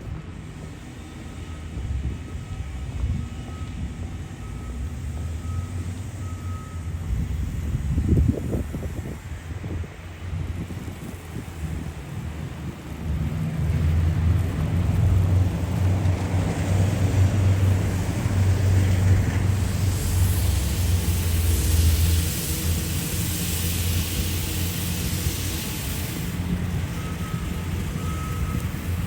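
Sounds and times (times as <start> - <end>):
vehicle engine rumble: 0.0 - 29.0
tyre hiss: 19.2 - 27.3.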